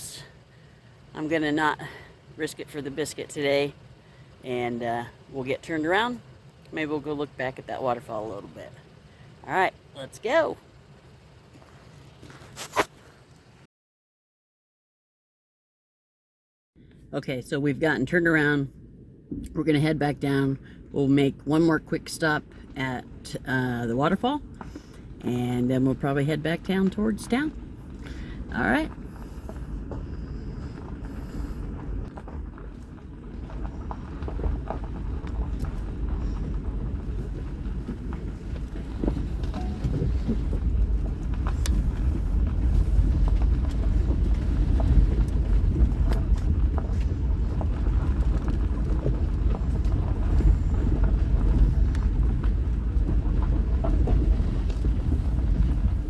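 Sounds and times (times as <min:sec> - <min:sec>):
vehicle rumbling on rough road: 0:00.0 - 0:13.7, 0:16.8 - 0:56.0
knocks and rattles: 0:31.8 - 0:56.0.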